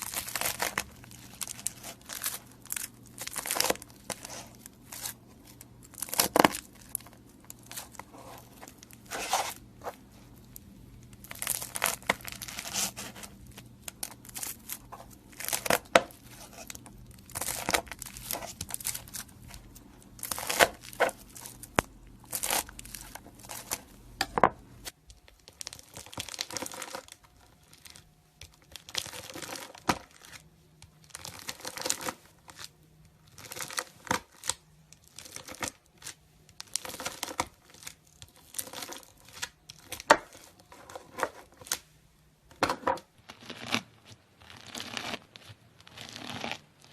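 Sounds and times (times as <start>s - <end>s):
knife crunching into slime: 0.0s - 9.6s, 11.2s - 24.4s, 42.7s - 46.9s
faint low hum: 0.0s - 46.9s.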